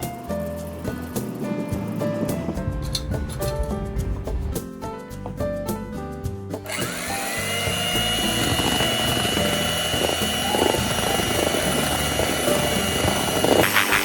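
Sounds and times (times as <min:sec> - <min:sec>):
electric hand mixer whining: 0:06.7 - 0:14.0.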